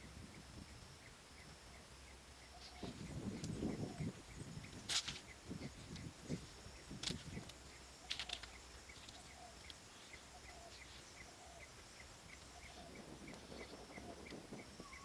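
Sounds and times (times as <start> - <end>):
light clicks: 7.0 - 9.8.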